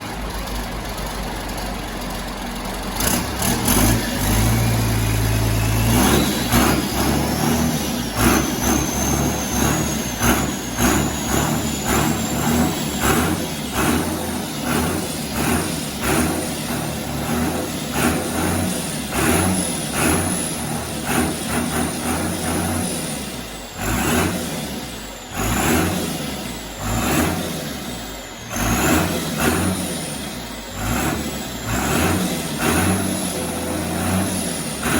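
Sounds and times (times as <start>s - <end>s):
diesel tractor engine revving: 0.0s - 34.9s.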